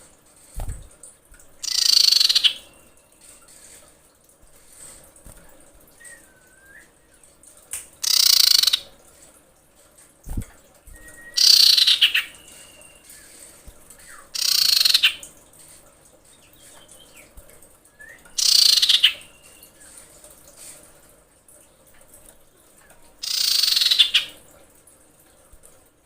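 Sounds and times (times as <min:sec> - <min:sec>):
harsh rasping bird calls: 0:01.6 - 0:02.9, 0:08.0 - 0:08.9, 0:11.4 - 0:13.4, 0:14.0 - 0:15.3, 0:18.3 - 0:19.7, 0:23.2 - 0:24.4
faint thin whistles: 0:06.0 - 0:07.2, 0:10.9 - 0:11.6, 0:17.9 - 0:18.4.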